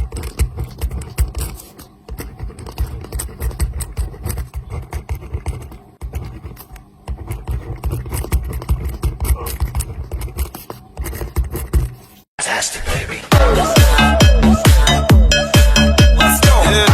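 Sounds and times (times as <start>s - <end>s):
pen scratching on paper: 0.0s - 12.3s.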